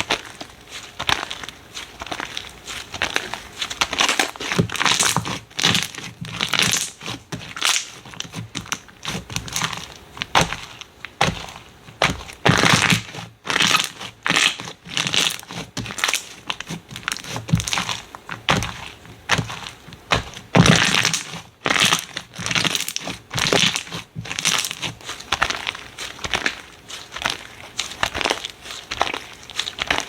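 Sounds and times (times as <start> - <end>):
slime squishing and crackling: 0.0 - 30.0.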